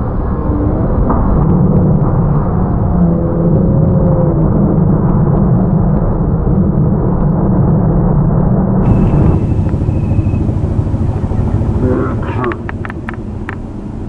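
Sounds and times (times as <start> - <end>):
faint steady high tone: 8.8 - 14.0
train rumbling over steel bridge: 8.8 - 14.0.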